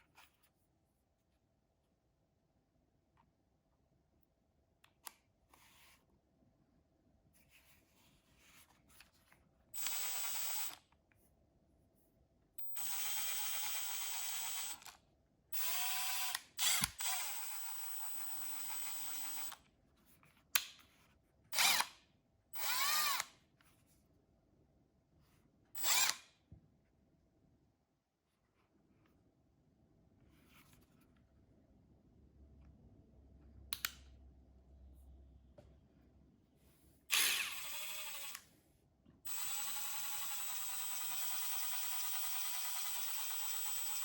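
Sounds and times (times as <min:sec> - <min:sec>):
impact driver motor whine: 0:37.1 - 0:38.4.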